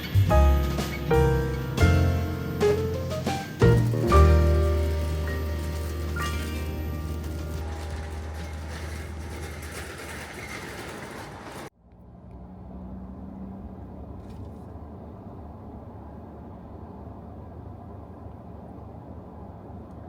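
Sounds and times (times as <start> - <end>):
background music: 0.0 - 8.4
low outdoor rumble: 0.0 - 20.0.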